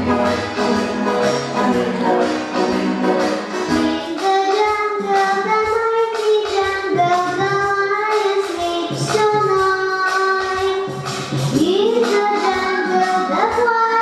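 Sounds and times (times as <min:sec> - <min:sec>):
instrumental music with low beat: 0:00.0 - 0:13.4
woman singing long notes: 0:01.5 - 0:02.8.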